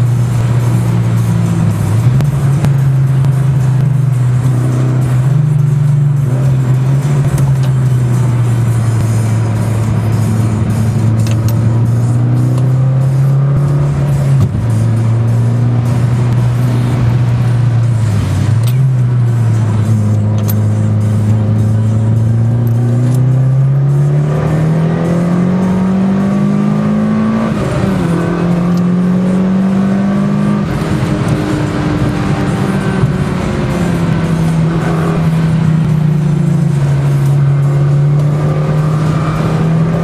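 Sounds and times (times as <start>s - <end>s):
car engine revving from inside cabin: 20.0s - 40.0s.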